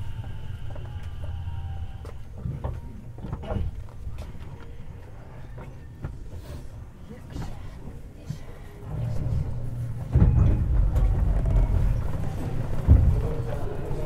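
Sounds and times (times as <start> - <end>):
train equipment hum: 0.0 - 14.0.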